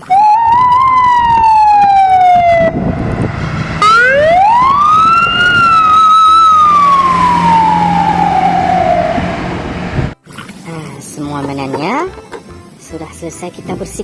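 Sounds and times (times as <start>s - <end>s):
toy electronic siren wailing: 0.0s - 2.8s, 3.8s - 9.4s.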